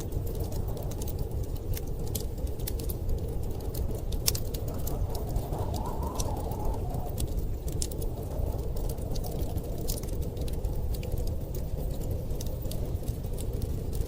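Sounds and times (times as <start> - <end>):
storm wind rumble: 0.0 - 14.0
wood fire crackling: 0.0 - 14.0
wind whistle: 4.4 - 9.5.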